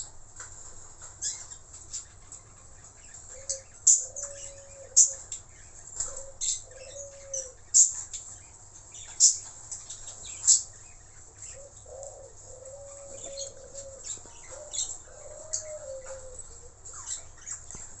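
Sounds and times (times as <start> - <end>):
low wavering cooing: 3.3 - 5.3, 6.0 - 7.9, 11.5 - 17.6.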